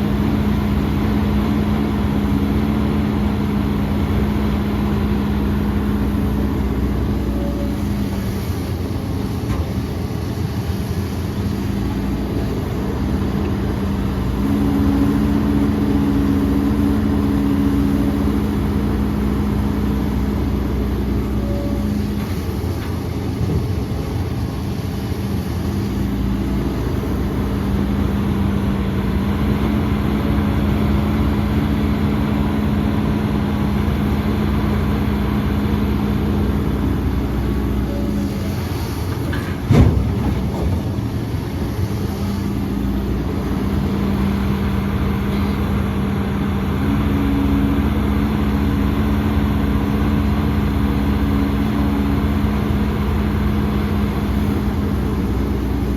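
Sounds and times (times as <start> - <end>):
heavy diesel engine revving: 11.6 - 22.2, 26.2 - 55.9.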